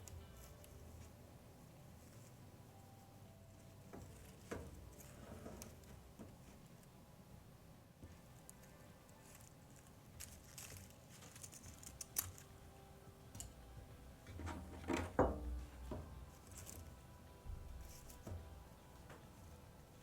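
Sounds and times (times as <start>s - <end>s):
dried flowers crackling and rustling: 0.0s - 7.0s, 8.0s - 12.7s, 15.6s - 20.0s.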